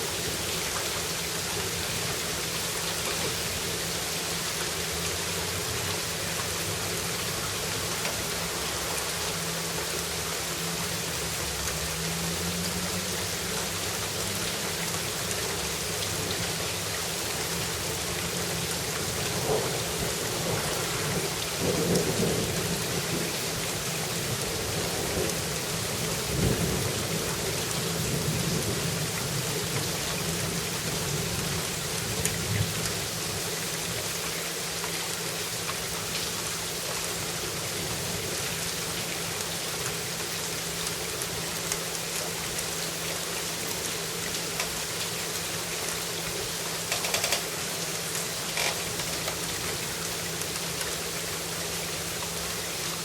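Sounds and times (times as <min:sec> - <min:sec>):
steady rain: 0:00.0 - 0:53.0
thunder rumble: 0:19.3 - 0:23.3.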